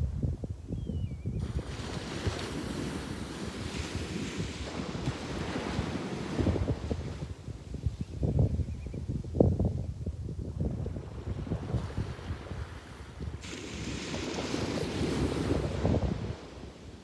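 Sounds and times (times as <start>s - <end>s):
wind buffeting microphone: 0.0s - 17.0s
sea wave breaking: 13.4s - 16.5s.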